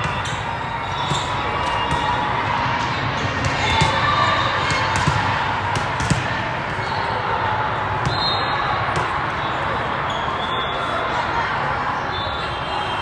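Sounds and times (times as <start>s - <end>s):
crowd chatter in a hall: 0.0s - 13.0s
volleyballs thudding: 3.2s - 6.8s.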